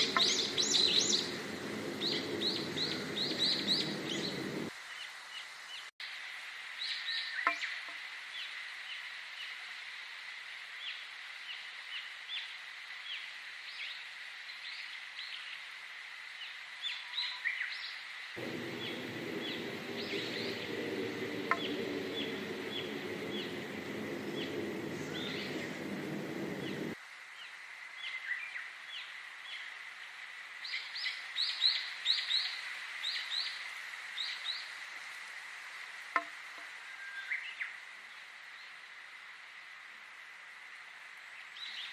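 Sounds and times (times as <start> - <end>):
birds chirping: 0.0 - 4.7, 18.4 - 27.0
steady rushing noise: 0.0 - 4.7, 18.4 - 27.0.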